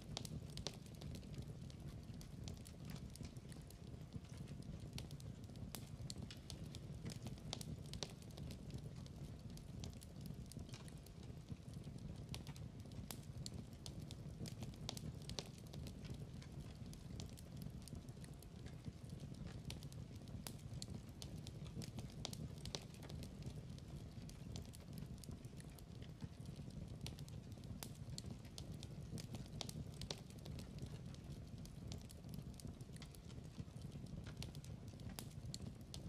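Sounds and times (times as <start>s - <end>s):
fire rumble: 0.0s - 36.0s
logs crackling and popping: 0.0s - 36.0s.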